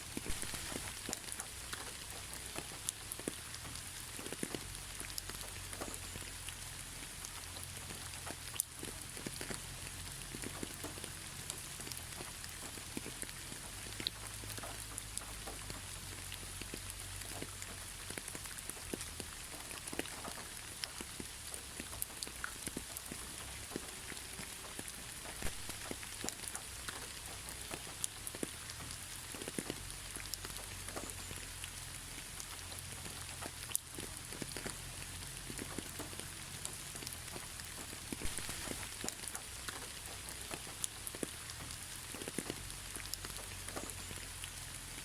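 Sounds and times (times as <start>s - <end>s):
gentle rain with ticking drops: 0.0s - 45.0s.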